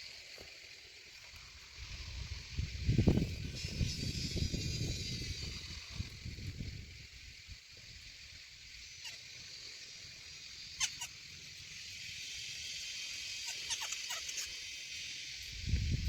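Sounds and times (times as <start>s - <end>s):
steady high hiss: 0.0s - 16.0s
bird sharp chirps: 10.6s - 15.3s.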